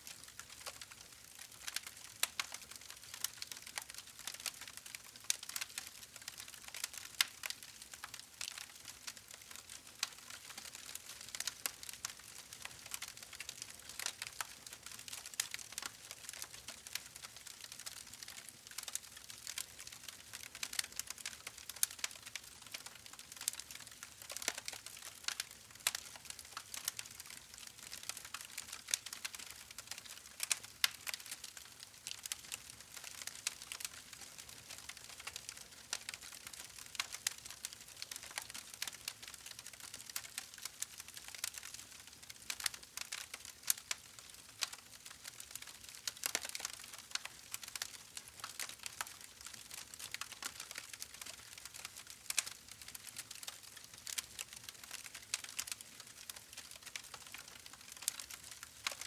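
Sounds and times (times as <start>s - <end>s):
wood fire crackling: 0.1s - 59.0s.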